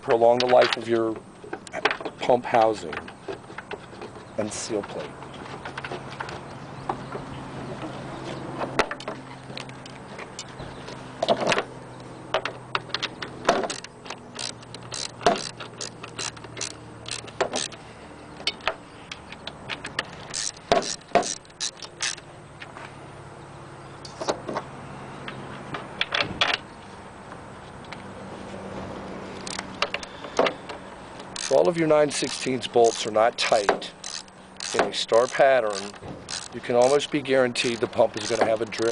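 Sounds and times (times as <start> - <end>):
ratchet wrench clicking: 12.9 - 17.8, 18.4 - 22.2, 29.4 - 30.0, 31.2 - 38.9.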